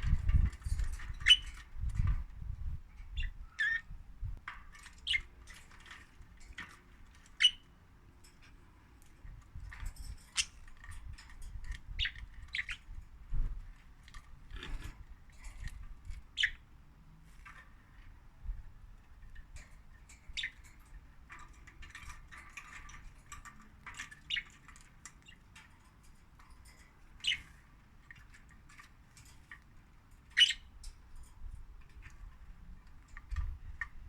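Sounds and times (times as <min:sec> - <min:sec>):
budgerigars chirping: 0:03.2 - 0:03.9, 0:30.4 - 0:30.7.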